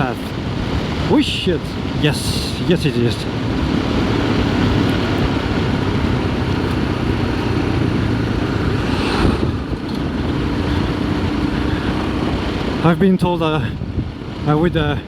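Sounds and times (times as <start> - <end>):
wind: 0.0 - 15.0
motorcycle engine running: 3.1 - 13.0.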